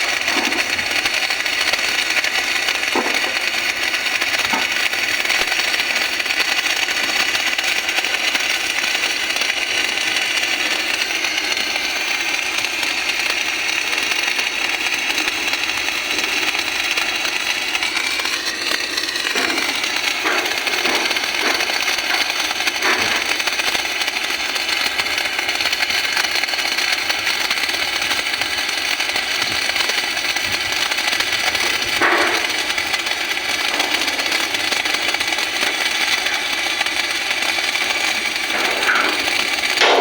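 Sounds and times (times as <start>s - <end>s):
welding arc crackling hiss: 0.0s - 40.0s.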